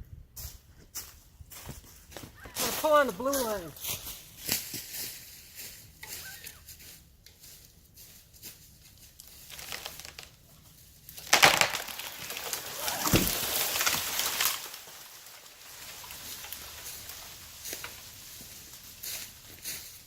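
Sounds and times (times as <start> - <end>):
tree trunk cracking: 9.4 - 10.4, 11.1 - 19.8
falling tree crashing through branches: 9.5 - 10.3, 11.2 - 19.7.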